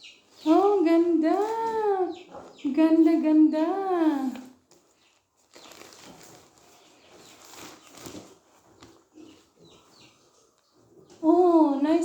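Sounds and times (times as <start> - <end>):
rustling of packaging and fabric: 0.2 - 2.5, 3.7 - 11.6
packaging crinkles: 4.7 - 9.1.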